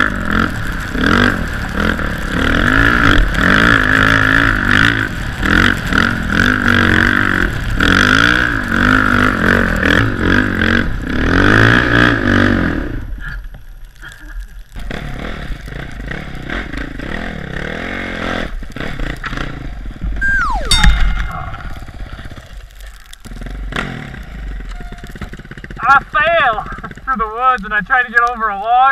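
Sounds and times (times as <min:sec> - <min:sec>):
dirt bike engine revving: 0:00.0 - 0:13.1, 0:14.8 - 0:22.4, 0:23.3 - 0:25.8
tone dropping in pitch: 0:20.2 - 0:22.0.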